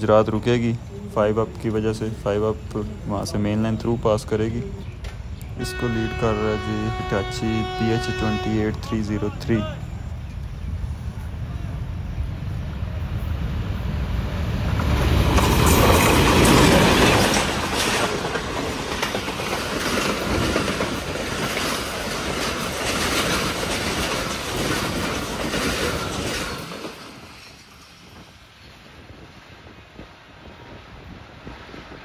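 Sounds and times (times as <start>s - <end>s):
locomotive rumble: 0.0s - 32.0s
wheels clattering over rail joints: 14.6s - 28.5s.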